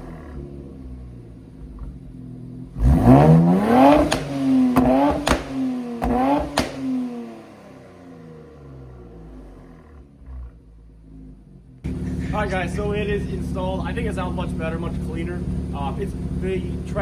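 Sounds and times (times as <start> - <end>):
car engine idling and revving: 0.0 - 17.0
exhaust snaps: 1.6 - 7.2.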